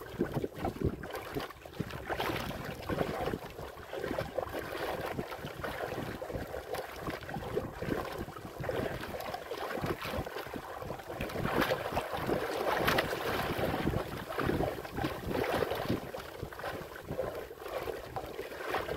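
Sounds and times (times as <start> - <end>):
water splashing against boat: 0.0 - 18.9
wind buffeting microphone: 5.0 - 17.4.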